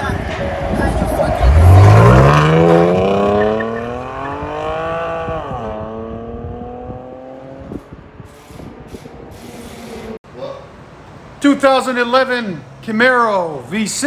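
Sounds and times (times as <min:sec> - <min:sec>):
car exhaust revving: 0:00.9 - 0:07.8.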